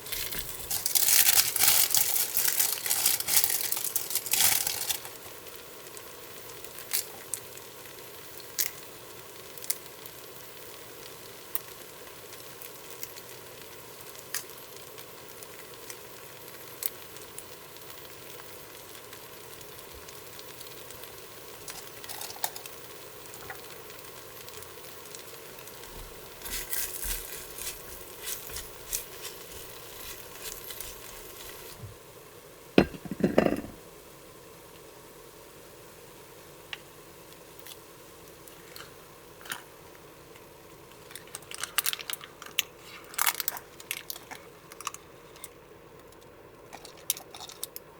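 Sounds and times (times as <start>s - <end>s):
food sizzling in a pan: 0.0s - 47.9s
utensils clinking on cookware: 21.7s - 22.7s, 32.8s - 33.8s.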